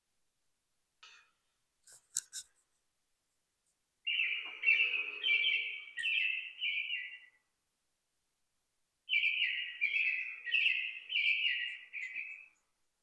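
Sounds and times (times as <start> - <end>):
bird chirping: 4.0 - 7.4, 9.1 - 12.6.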